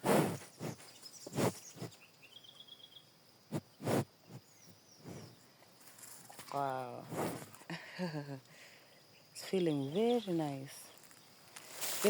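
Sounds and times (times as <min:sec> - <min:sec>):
soft scuffing or rustling: 0:11.0 - 0:12.0.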